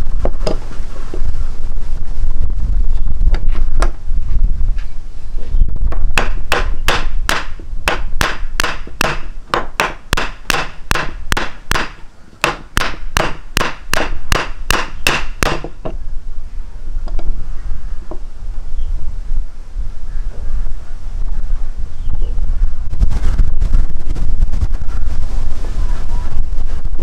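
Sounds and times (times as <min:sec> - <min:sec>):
wind rumble on microphone: 0:00.0 - 0:27.0
sharp knocks: 0:05.9 - 0:16.0.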